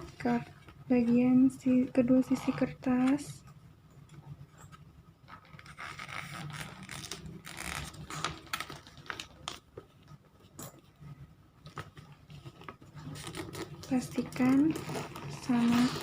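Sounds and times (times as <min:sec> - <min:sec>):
paper creasing crackles: 0:05.3 - 0:09.7, 0:12.2 - 0:16.0
paper rustling and crinkling: 0:05.3 - 0:09.7.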